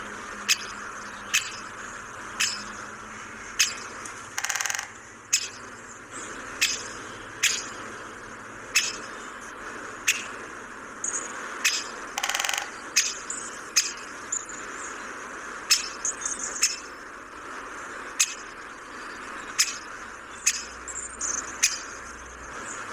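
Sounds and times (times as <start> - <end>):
high bird chirps: 0.4 - 1.7, 2.4 - 2.8, 3.5 - 5.6, 6.6 - 7.8, 8.7 - 9.2, 10.0 - 10.4, 11.0 - 15.0, 15.7 - 17.0, 18.2 - 22.2
harsh buzzy bird call: 0.4 - 7.9, 11.1 - 15.0, 15.6 - 22.9
sharp clicks: 3.6 - 5.6, 11.7 - 13.2.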